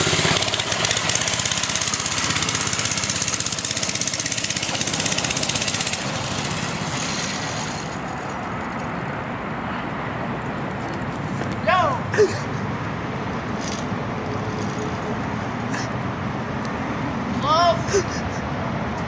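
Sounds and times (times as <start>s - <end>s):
dirt bike engine running: 0.0s - 8.1s.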